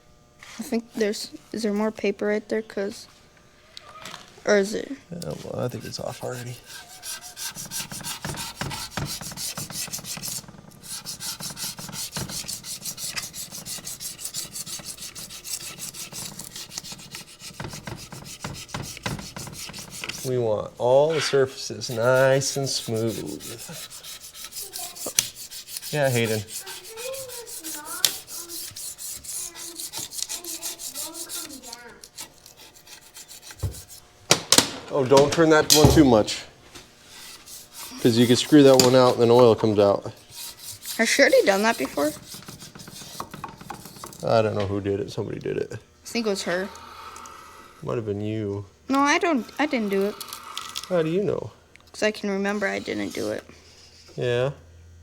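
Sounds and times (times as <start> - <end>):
hand rubbing on metal: 4.6 - 34.1, 35.4 - 45.4, 46.1 - 48.2, 48.9 - 51.4, 52.0 - 54.3
scraping on metal: 5.2 - 34.1, 37.0 - 44.8, 46.1 - 48.0, 48.9 - 51.1, 52.0 - 54.2
soft thump: 35.8 - 36.3.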